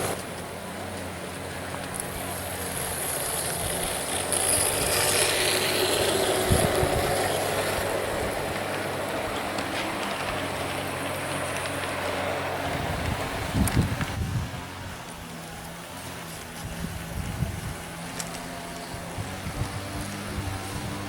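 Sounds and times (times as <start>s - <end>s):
model train motor hum: 0.0s - 21.0s
wheels rumbling on rails: 0.0s - 21.0s.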